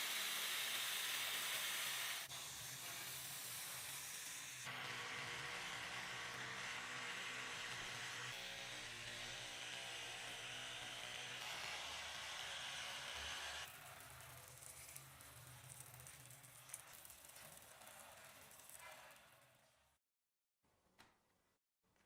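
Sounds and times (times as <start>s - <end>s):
power tool whirring: 0.0s - 15.0s.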